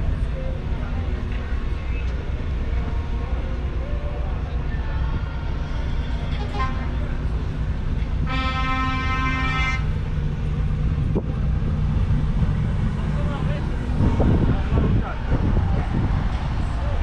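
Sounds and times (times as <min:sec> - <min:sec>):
diesel truck engine rumbling: 0:00.0 - 0:17.0
truck horn: 0:08.2 - 0:10.0.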